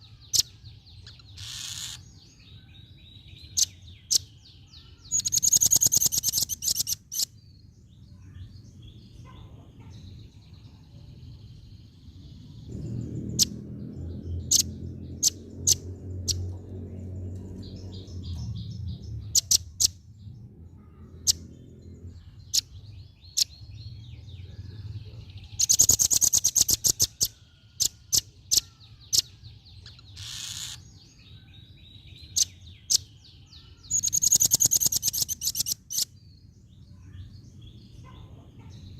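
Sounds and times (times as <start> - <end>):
bird calling in clicky trills: 5.1 - 7.3, 25.6 - 30.8, 33.9 - 36.1
low rumble: 11.0 - 25.6.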